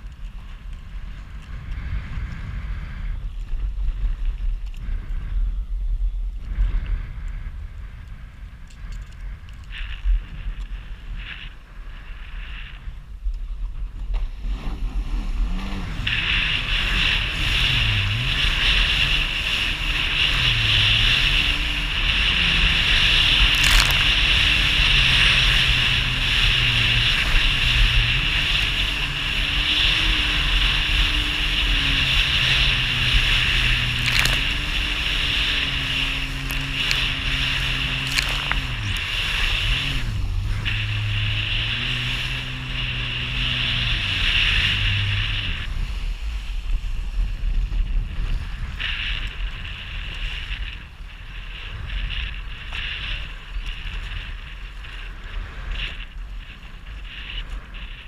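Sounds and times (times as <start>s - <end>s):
water and wind rushing: 0.0s - 58.0s
jet ski engine revving: 13.8s - 58.0s.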